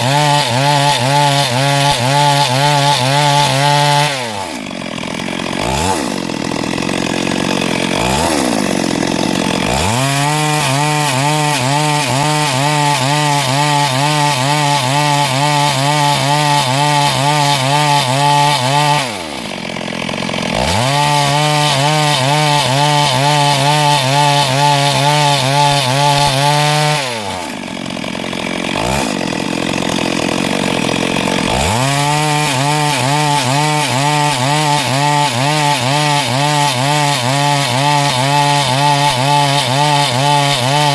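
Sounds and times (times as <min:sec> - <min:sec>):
chainsaw engine revving and idling: 0:00.0 - 0:40.9.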